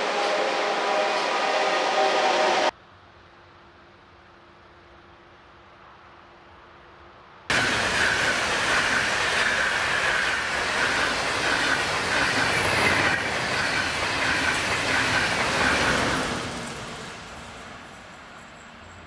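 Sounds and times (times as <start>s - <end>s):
train wheels rushing on rail: 0.0s - 2.8s, 7.5s - 19.0s
wheels clattering on rail: 7.5s - 19.0s.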